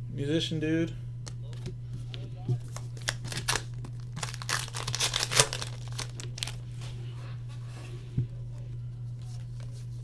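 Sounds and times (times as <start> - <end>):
low electrical hum: 0.0 - 10.0
card wrappers crinkling: 2.6 - 6.7.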